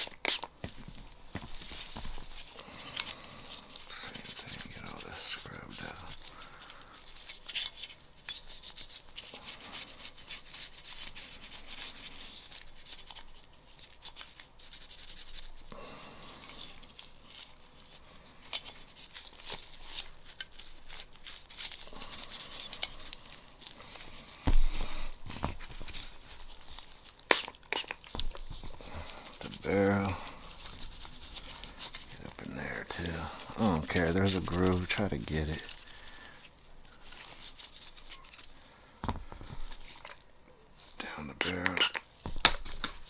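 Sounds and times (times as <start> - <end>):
rubbing and wiping: 1.4 - 15.7, 18.6 - 38.5.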